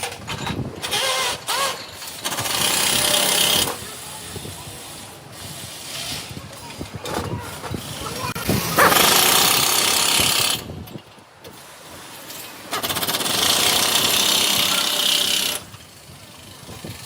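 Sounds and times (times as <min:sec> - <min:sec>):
loud workshop tool running: 0:07.7 - 0:10.7, 0:12.7 - 0:17.0.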